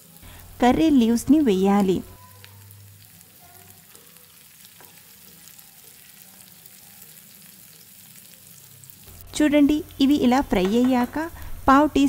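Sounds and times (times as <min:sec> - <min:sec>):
onions frying in hot oil: 0:00.0 - 0:12.0.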